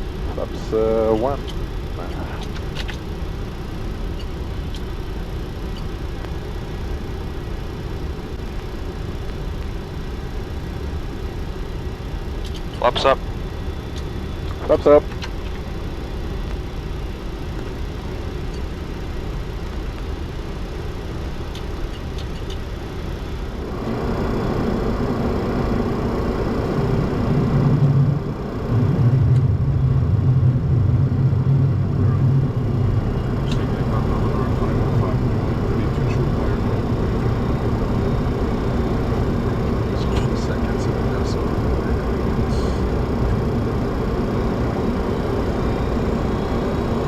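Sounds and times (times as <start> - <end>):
jet engines and airflow: 0.0 - 47.0
strong low hum: 0.0 - 47.0.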